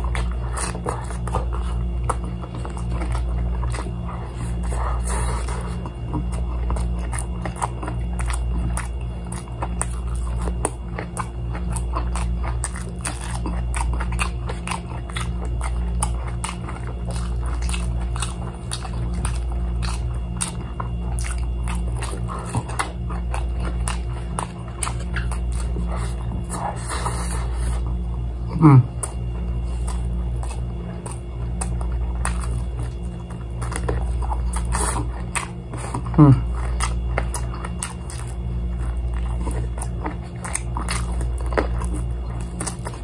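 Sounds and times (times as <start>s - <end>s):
crispy fried chicken crunching: 0.0s - 43.0s
steady low hum: 0.0s - 43.0s.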